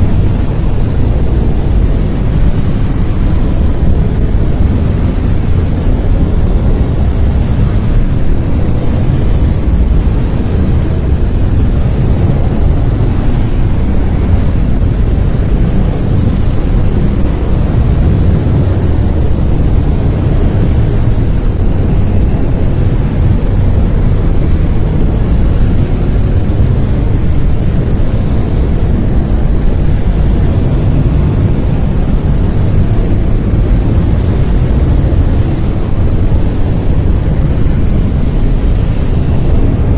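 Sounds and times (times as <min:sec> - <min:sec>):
brown noise: 0:00.0 - 0:39.9.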